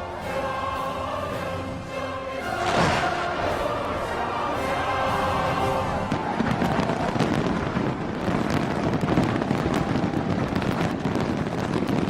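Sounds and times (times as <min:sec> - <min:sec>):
fireworks crackling and popping: 0:02.5 - 0:04.1, 0:06.0 - 0:12.0
fireworks bangs: 0:02.5 - 0:12.0.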